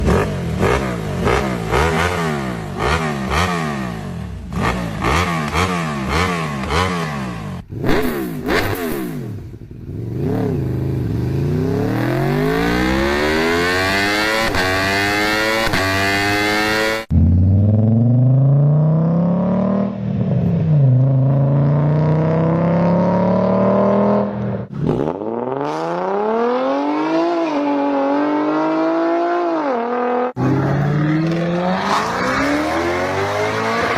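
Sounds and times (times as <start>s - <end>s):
engine revving: 0.0s - 33.9s
engine accelerating rising pitch: 11.4s - 24.4s, 25.0s - 33.9s.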